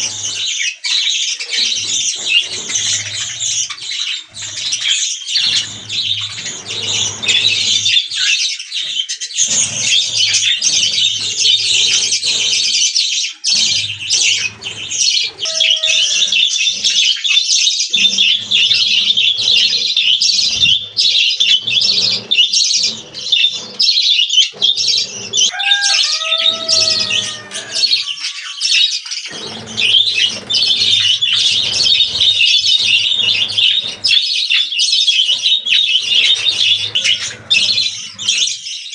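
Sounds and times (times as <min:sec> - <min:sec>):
budgerigars chattering and chirping: 0:00.0 - 0:38.9
lower pitch-bending bird calls: 0:14.1 - 0:16.9, 0:25.5 - 0:34.0.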